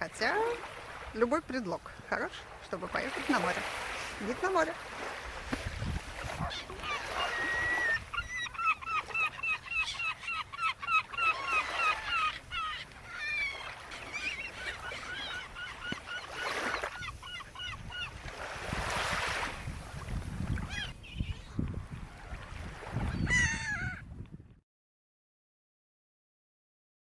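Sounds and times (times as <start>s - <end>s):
birds calling in short notes: 6.3s - 18.2s.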